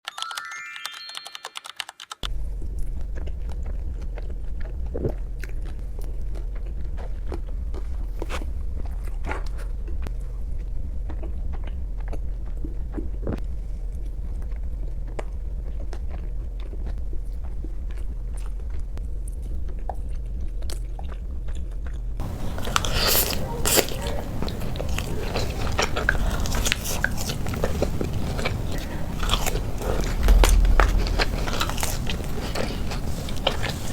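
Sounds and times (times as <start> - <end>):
steady low hum: 2.2 - 33.9
chewing crunchy fries: 2.3 - 33.9.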